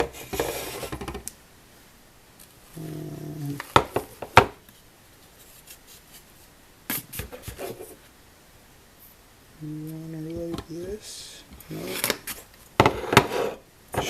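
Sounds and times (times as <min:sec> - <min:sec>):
person humming: 0:02.7 - 0:03.8, 0:09.6 - 0:12.2.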